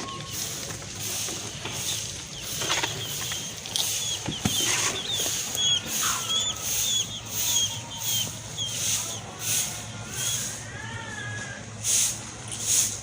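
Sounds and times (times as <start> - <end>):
grass rustling and crunching: 0.0 - 9.8
small birds chirping: 0.0 - 10.8.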